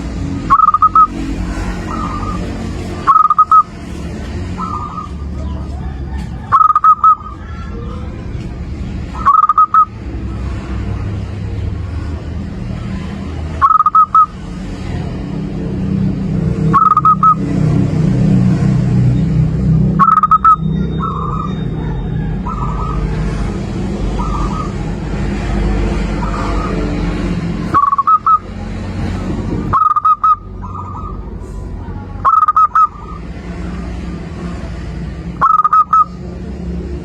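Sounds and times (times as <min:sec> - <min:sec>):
dove cooing: 0:00.4 - 0:03.8, 0:04.6 - 0:08.4, 0:09.1 - 0:10.2, 0:13.6 - 0:14.4, 0:16.7 - 0:17.4, 0:20.0 - 0:25.5, 0:26.1 - 0:28.6, 0:29.7 - 0:33.9, 0:35.4 - 0:36.2.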